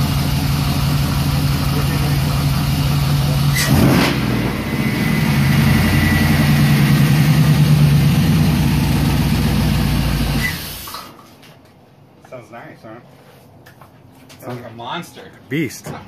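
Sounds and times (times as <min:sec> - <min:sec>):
car engine idling: 0:00.0 - 0:10.9.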